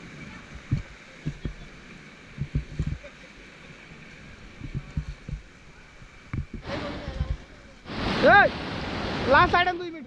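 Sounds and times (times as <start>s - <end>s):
river water rushing: 0.0s - 10.0s
low thuds on microphone: 0.6s - 1.6s, 2.4s - 3.0s, 4.6s - 5.5s.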